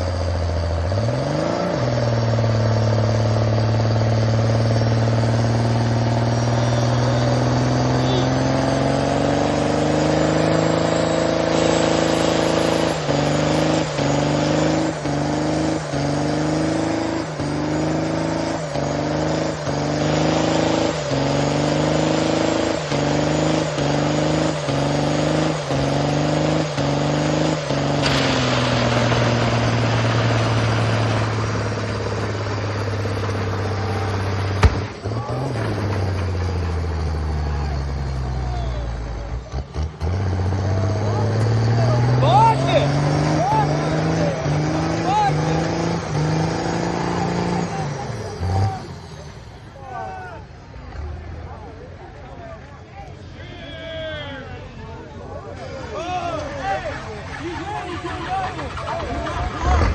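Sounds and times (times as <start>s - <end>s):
engine revving high: 0.0s - 52.4s, 57.7s - 59.9s
sharp knock: 34.5s - 35.0s.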